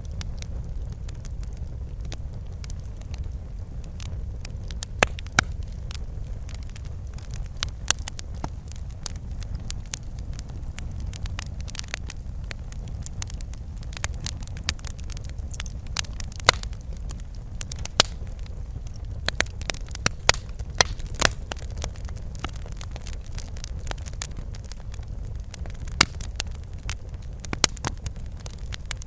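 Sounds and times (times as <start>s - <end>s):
low rumble of burning fire: 0.0s - 29.0s
wood fire popping and snapping: 0.0s - 29.0s.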